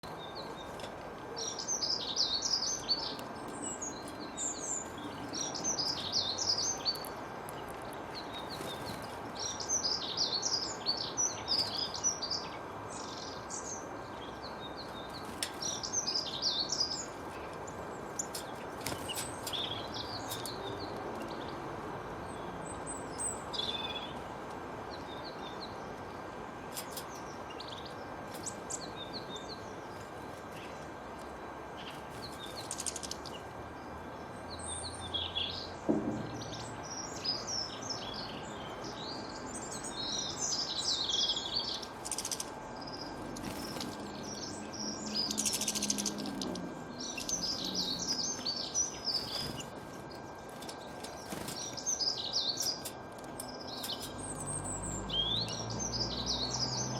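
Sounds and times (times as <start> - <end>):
small songbirds chirping: 0.0 - 56.9
steady background hiss: 0.0 - 56.9.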